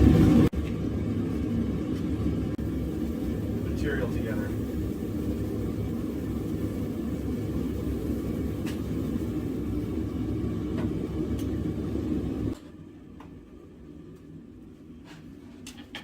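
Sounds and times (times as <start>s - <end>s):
forge roaring: 0.0s - 12.6s.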